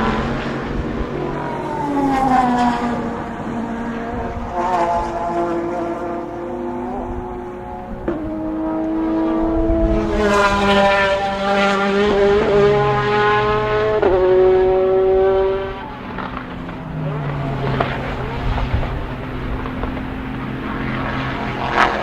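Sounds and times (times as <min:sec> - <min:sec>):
race car engines passing: 0:00.0 - 0:22.0.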